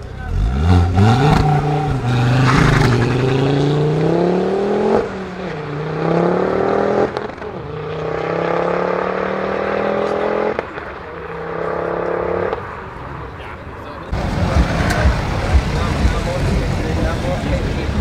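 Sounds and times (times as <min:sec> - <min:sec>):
car engine accelerating hard: 0:00.0 - 0:12.9.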